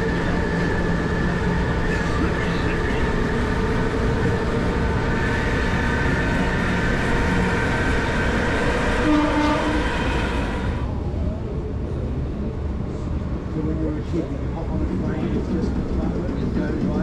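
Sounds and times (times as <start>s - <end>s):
held whine: 0.0s - 11.0s
train wheels rumbling: 0.0s - 17.0s.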